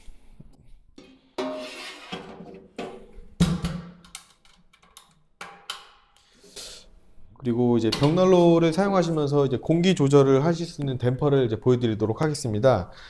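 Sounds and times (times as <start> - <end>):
metal ash pan clanking: 1.0 - 3.0.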